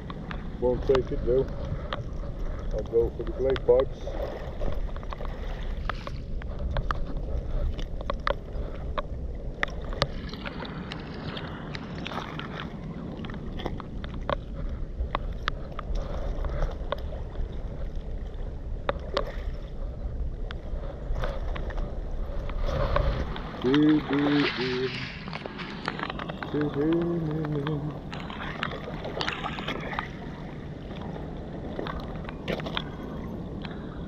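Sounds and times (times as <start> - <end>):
wind rumble: 0.0 - 34.0
lapping water: 22.4 - 31.1.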